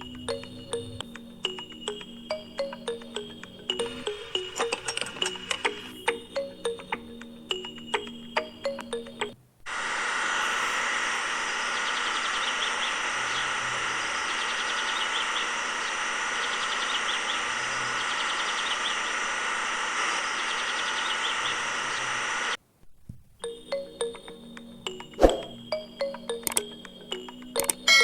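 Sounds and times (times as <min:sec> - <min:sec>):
high chirps: 0:00.0 - 0:09.4
small motor whining: 0:09.7 - 0:22.6.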